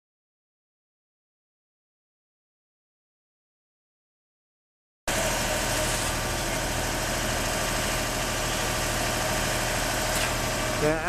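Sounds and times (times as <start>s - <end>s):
engine idling: 5.1s - 11.0s
street noise hiss: 5.1s - 11.0s.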